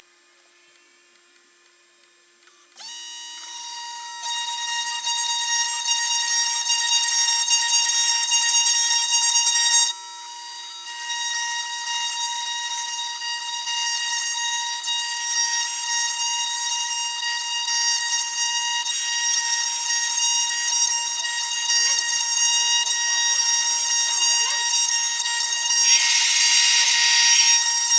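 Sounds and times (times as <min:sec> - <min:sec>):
router bit cutting wood hiss: 0:25.5 - 0:27.9
router spindle whine: 0:25.6 - 0:27.9.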